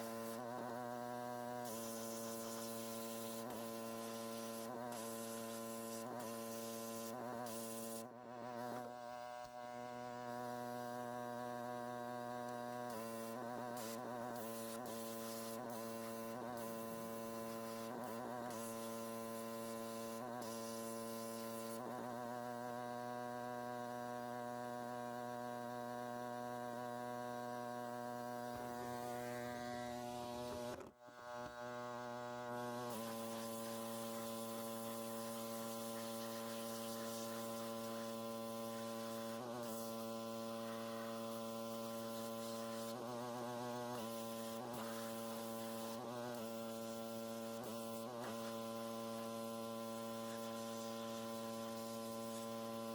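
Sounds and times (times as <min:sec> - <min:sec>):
pressure washer humming: 0:32.9 - 0:52.9.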